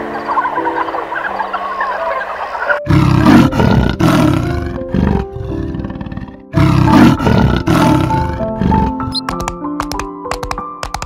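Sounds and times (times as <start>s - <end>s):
background music: 0.0s - 11.0s
big cat roaring: 2.8s - 9.1s.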